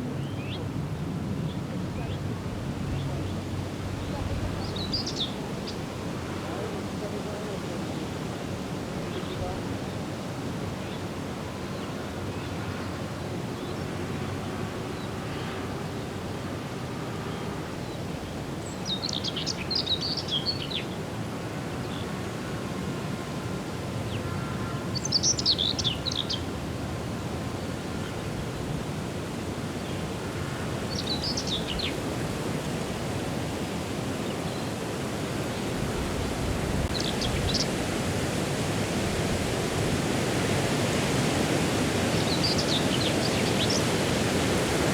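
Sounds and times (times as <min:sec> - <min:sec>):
songbird singing: 0:00.0 - 0:08.2, 0:08.9 - 0:21.0, 0:24.0 - 0:26.6, 0:29.7 - 0:38.0, 0:41.6 - 0:44.9.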